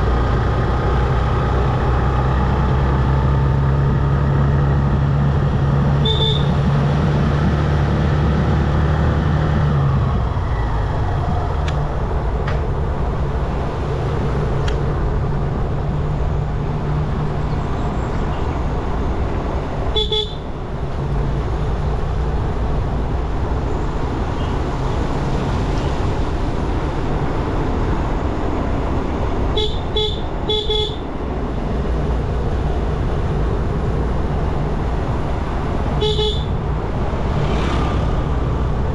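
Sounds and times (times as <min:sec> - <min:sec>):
wind and road noise: 0:00.0 - 0:38.9
motorcycle engine running: 0:03.7 - 0:09.2
horn honking: 0:06.0 - 0:06.7, 0:19.9 - 0:20.5, 0:29.6 - 0:31.1, 0:36.0 - 0:36.6.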